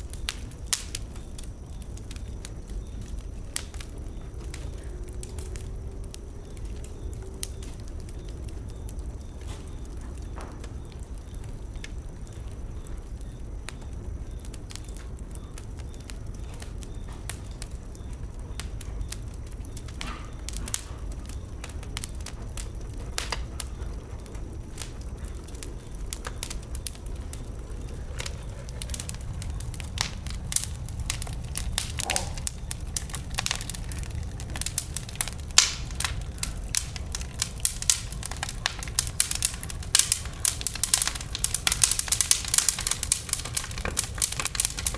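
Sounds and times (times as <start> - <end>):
bonfire crackling and popping: 0.0 - 44.9
low fire rumble: 0.0 - 44.9.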